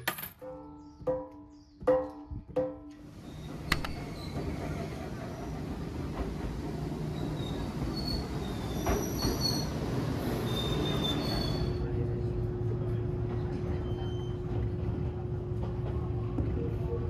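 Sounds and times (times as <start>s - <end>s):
train running on rails: 2.9s - 17.0s
high wheel squeal: 3.2s - 5.7s, 7.0s - 11.8s.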